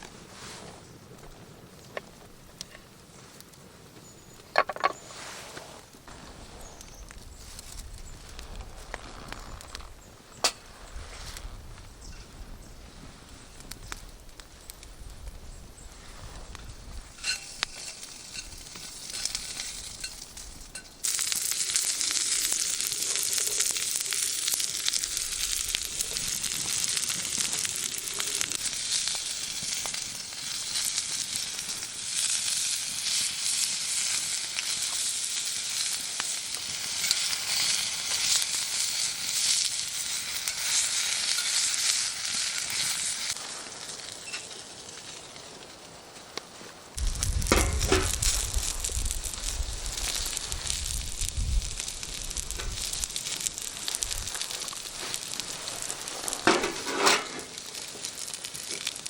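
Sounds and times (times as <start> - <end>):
food sizzling in a hot pan: 17.0 - 45.2, 47.0 - 59.0.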